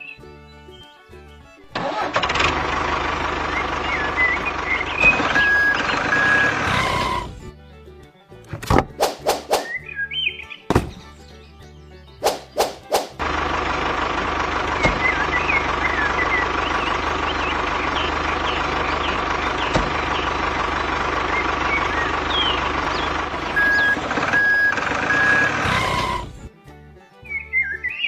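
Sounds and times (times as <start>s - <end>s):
truck engine running: 0.0s - 28.0s
faint bird chirps: 3.5s - 7.6s, 9.6s - 13.0s, 14.8s - 20.4s, 21.2s - 26.3s
reversing alarm beeps: 23.6s - 26.2s.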